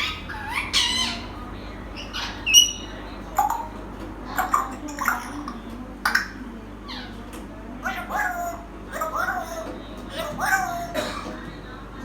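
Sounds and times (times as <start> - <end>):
parrot squawks and calls: 0.0 - 1.4, 2.0 - 5.5, 7.8 - 11.0.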